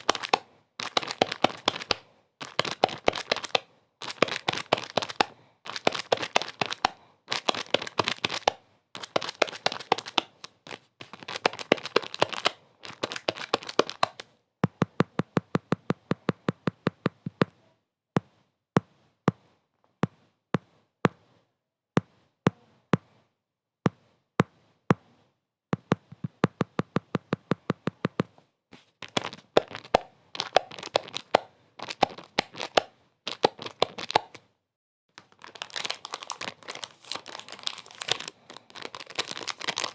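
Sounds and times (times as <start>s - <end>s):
dense crinkling crackle: 35.1s - 39.9s.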